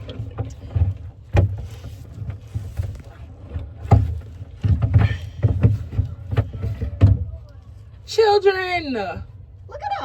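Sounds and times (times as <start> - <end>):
kayak hulls bumping together: 0.0 - 7.8.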